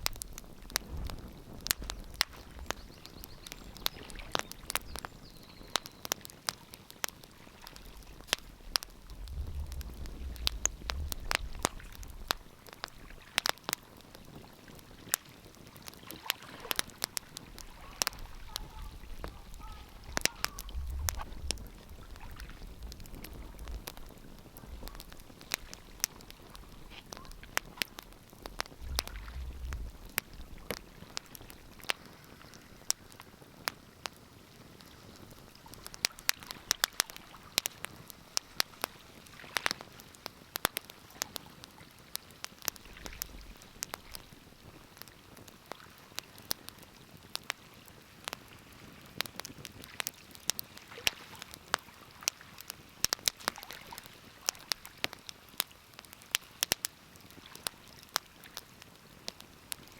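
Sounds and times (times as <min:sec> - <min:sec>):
faint hiss: 0:00.0 - 0:49.9
wood fire crackling: 0:00.0 - 0:59.9
soft low thuds: 0:08.0 - 0:12.4, 0:18.8 - 0:30.9.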